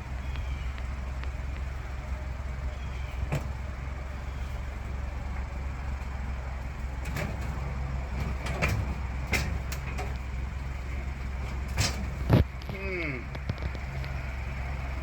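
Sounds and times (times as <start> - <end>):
vehicle engine humming: 0.0 - 15.0
metal knocks and clanks: 3.1 - 12.7.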